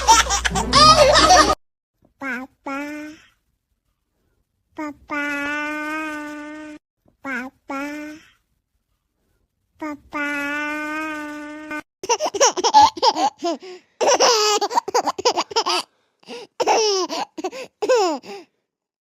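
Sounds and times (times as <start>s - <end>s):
young child laughing: 0.0s - 1.6s.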